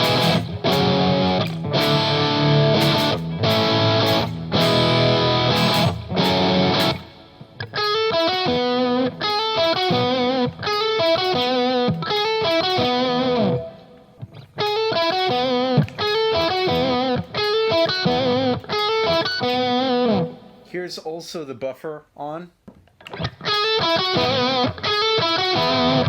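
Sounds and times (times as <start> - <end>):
overdriven electric guitar: 0.0 - 20.6, 23.0 - 26.0.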